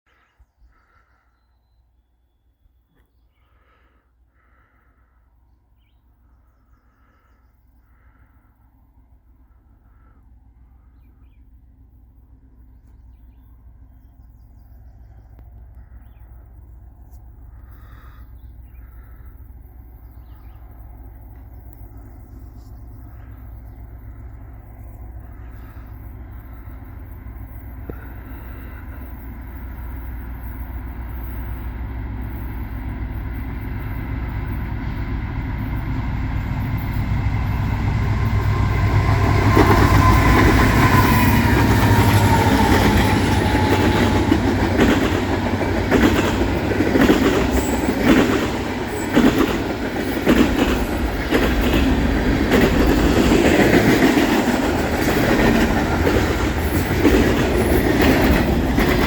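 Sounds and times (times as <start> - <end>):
diesel locomotive engine rumble: 3.5 - 59.0
train wheels clacking over rail joints: 37.8 - 59.0.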